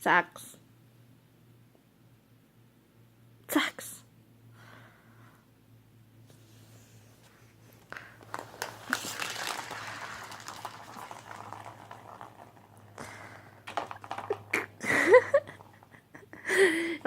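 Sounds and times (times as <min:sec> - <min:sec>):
cat toy rustling and clicking: 0:08.0 - 0:12.9.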